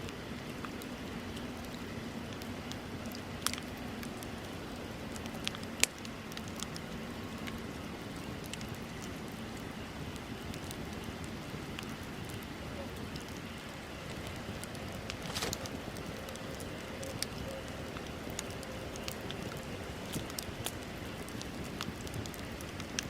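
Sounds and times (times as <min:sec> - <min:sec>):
bonfire hissing and crackling: 0:00.0 - 0:23.0
sharp pops from fire: 0:05.1 - 0:06.8, 0:13.1 - 0:23.0.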